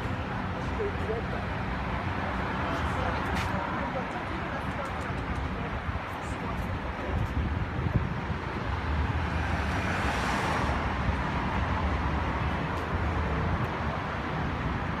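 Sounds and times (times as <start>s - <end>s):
road traffic rumble: 0.0s - 15.0s
vehicle passing: 8.8s - 13.3s.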